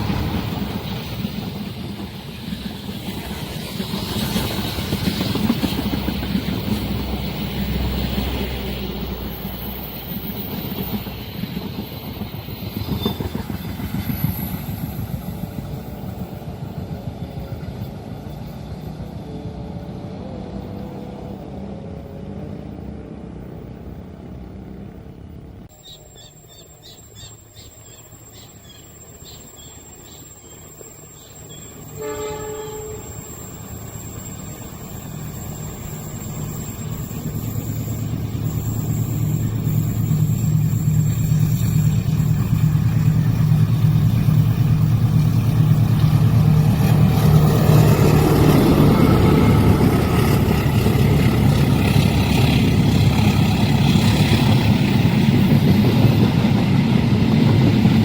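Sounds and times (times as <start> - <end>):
train wheels clattering: 0.0 - 19.0.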